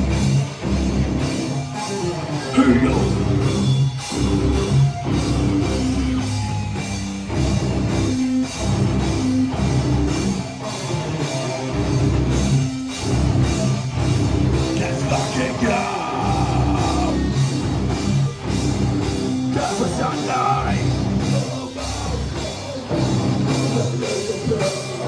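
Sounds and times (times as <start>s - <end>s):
bass guitar: 0.0s - 25.0s
distorted electric guitars: 0.0s - 25.0s
driving drum kit: 0.0s - 25.0s.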